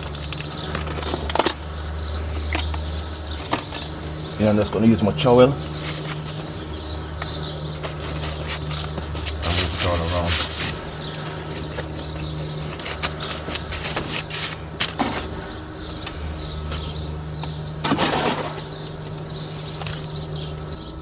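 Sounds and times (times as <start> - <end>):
birds chirping: 0.0 - 21.0
steady low hum: 0.0 - 21.0
trowel scraping cement: 7.7 - 15.3.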